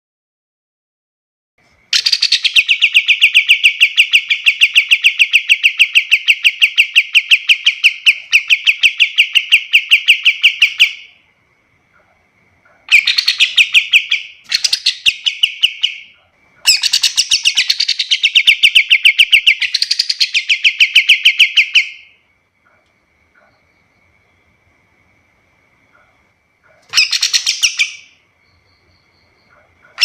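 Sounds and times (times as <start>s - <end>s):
bird rapid chirps: 1.9s - 11.2s, 12.9s - 22.2s, 26.7s - 30.0s.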